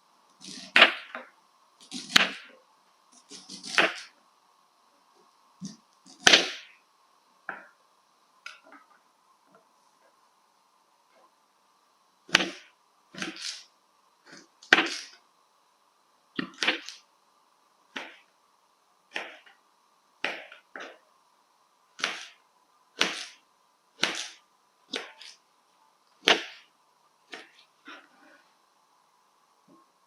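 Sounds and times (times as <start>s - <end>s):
knife chopping on wooden board: 22.0s - 22.3s, 23.0s - 23.4s, 24.0s - 25.3s, 26.2s - 26.6s.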